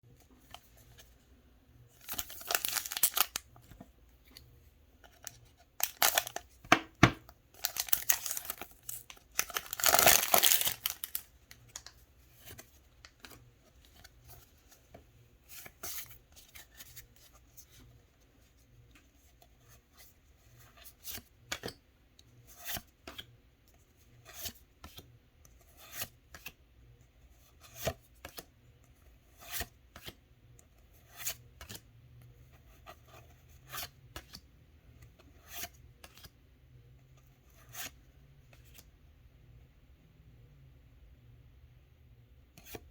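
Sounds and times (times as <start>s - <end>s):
foil wrapper tearing and crinkling: 2.1s - 3.4s, 5.8s - 6.4s, 7.6s - 11.2s.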